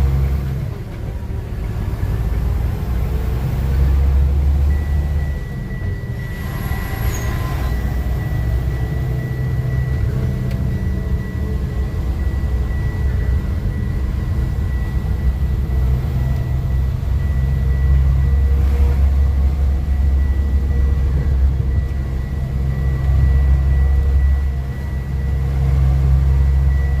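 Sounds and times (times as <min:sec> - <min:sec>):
paving machinery engine hum: 0:00.0 - 0:27.0
thin high whine: 0:04.9 - 0:25.5.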